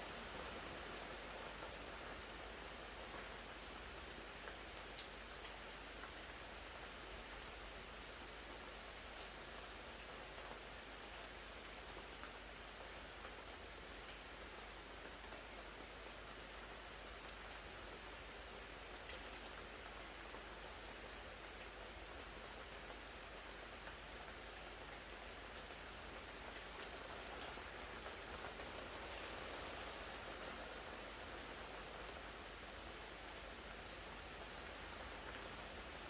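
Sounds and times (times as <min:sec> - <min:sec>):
steady rain hiss: 0:00.0 - 0:36.0
faint raindrop ticks: 0:00.4 - 0:36.0.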